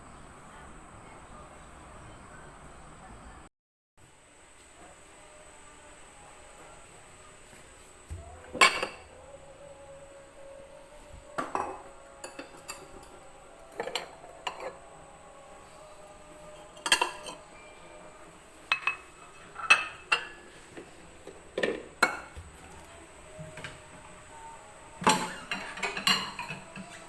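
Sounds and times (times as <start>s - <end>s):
cutlery and dishes clinking: 8.5s - 9.1s, 11.4s - 14.8s, 16.5s - 17.8s, 18.7s - 20.5s, 25.0s - 27.0s.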